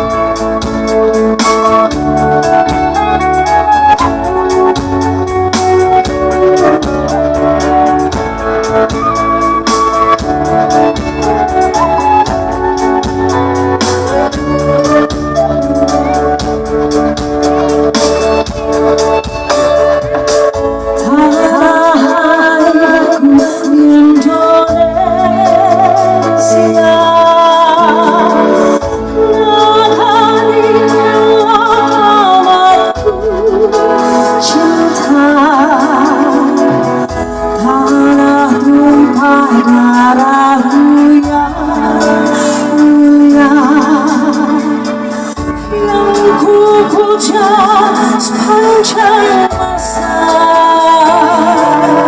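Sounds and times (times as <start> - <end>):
instrumental accompaniment: 0.0 - 52.0
live band with keyboard: 0.0 - 52.0
person singing with vibrato: 21.0 - 52.0.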